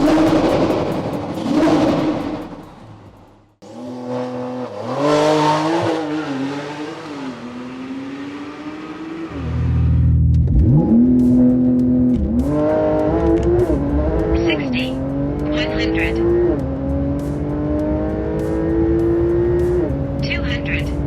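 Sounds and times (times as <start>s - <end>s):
car engine accelerating: 0.0s - 21.0s.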